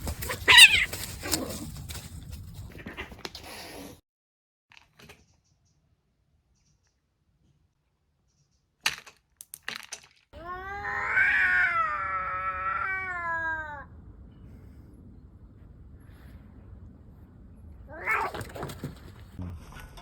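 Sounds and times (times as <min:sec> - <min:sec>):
cat yowling: 0:00.3 - 0:01.0, 0:10.4 - 0:13.9, 0:17.9 - 0:18.6.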